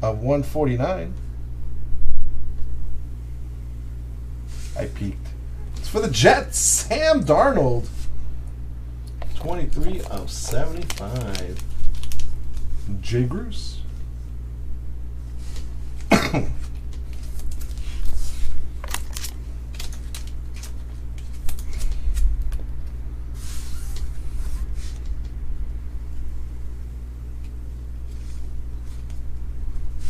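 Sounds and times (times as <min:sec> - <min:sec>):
low electrical hum: 0:00.0 - 0:30.0
person coughing: 0:16.0 - 0:16.7.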